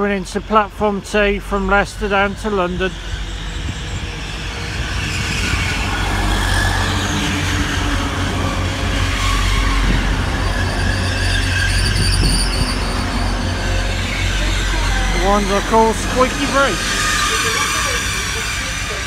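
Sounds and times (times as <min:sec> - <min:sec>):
train rumble: 0:00.0 - 0:19.0
high-pitched brake squeal: 0:02.8 - 0:19.0.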